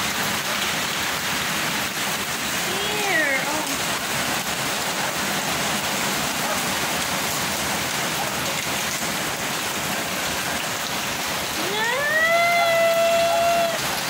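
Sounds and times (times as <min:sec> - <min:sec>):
heavy rain on concrete: 0:00.0 - 0:14.0.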